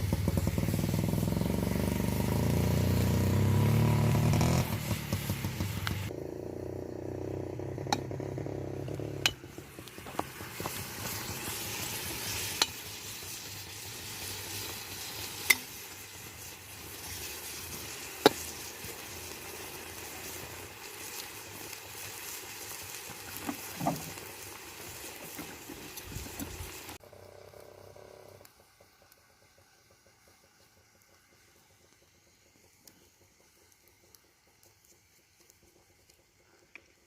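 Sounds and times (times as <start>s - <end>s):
food sizzling and frying in a pot: 0.0s - 37.0s
utensil striking metal pot: 9.2s - 10.2s, 12.5s - 12.8s, 15.4s - 15.8s.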